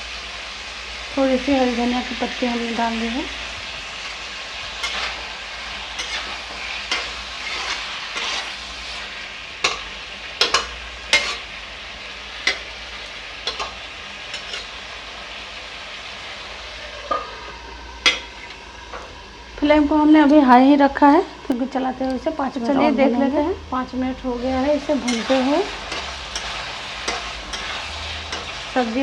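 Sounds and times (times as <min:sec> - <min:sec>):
vegetables sizzling in a pan: 0:00.0 - 0:29.0
spatula scraping and stirring: 0:04.7 - 0:11.5, 0:12.3 - 0:14.8, 0:24.8 - 0:29.0.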